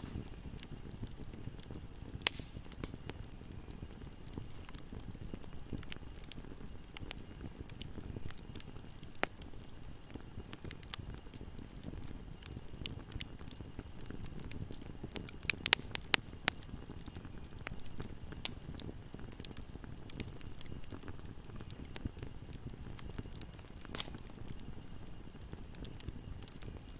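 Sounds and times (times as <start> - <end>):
bonfire flames rumbling: 0.0 - 26.9
fire crackling and popping: 0.0 - 26.9.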